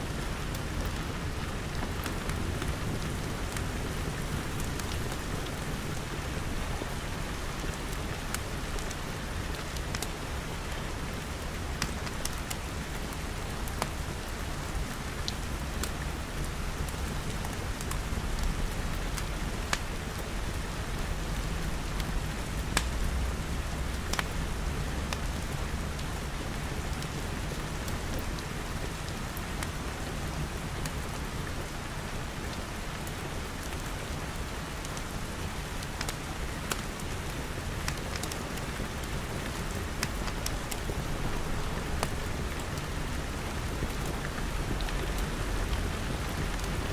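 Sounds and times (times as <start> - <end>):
wood fire crackling: 0.1 - 14.5, 15.1 - 28.2, 34.6 - 46.9
rain pattering on glass: 0.2 - 33.8, 34.4 - 46.9.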